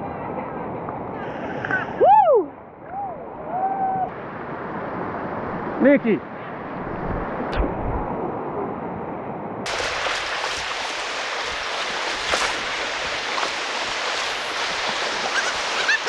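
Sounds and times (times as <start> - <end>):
creek water rushing: 9.7 - 16.0.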